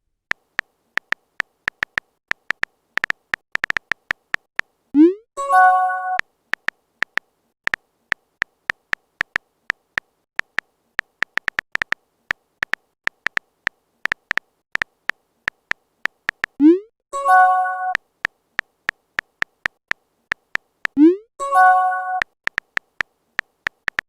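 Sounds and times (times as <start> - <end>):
phone keyboard typing clicks: 0.3 - 4.7, 6.1 - 16.6, 17.4 - 24.0
electronic message chime: 17.2 - 18.0, 21.4 - 22.2.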